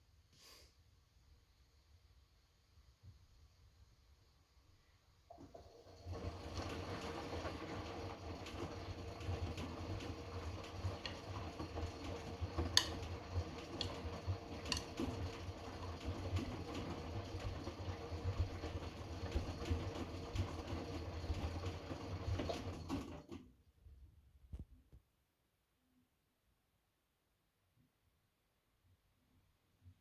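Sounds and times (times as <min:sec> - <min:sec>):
washing machine motor hum: 0:05.3 - 0:23.5.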